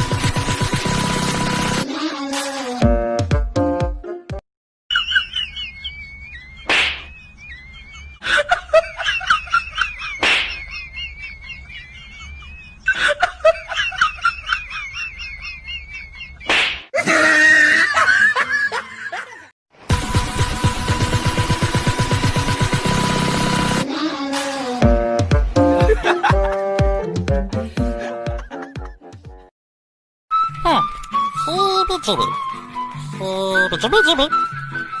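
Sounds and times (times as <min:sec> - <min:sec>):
music: 0:00.0 - 0:04.4, 0:19.9 - 0:29.5, 0:30.3 - 0:35.0
slap-like hits: 0:06.6 - 0:07.1, 0:10.2 - 0:10.6, 0:16.4 - 0:16.9.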